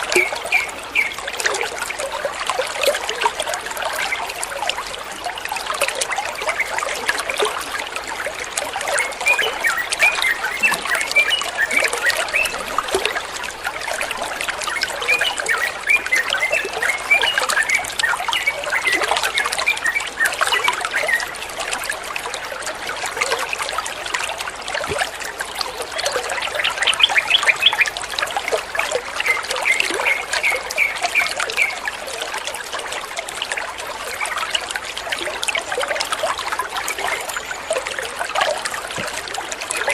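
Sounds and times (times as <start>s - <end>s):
water trickling: 0.0s - 39.9s
bird chirping song: 8.9s - 12.6s, 14.7s - 21.3s, 26.4s - 28.0s.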